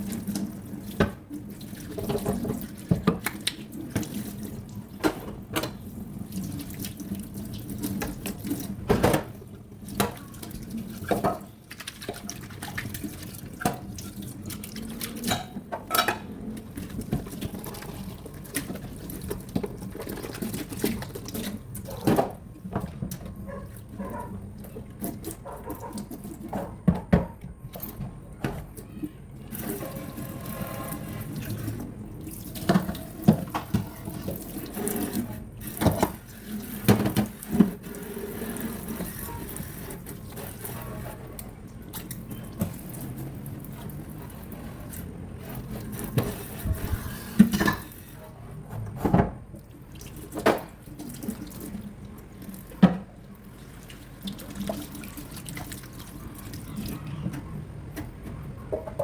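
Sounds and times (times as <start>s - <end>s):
tap water running into sink: 0.0s - 48.1s, 49.1s - 59.0s
knocks and clinks of dishes: 15.3s - 16.3s.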